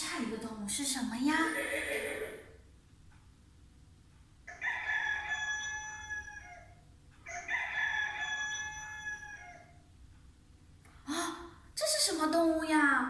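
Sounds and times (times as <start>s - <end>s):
rooster crowing: 4.5s - 9.8s.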